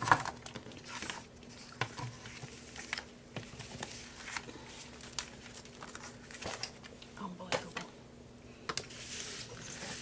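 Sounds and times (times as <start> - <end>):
faint steady hum: 0.0 - 10.0
paper rustling: 0.6 - 6.8, 8.9 - 10.0.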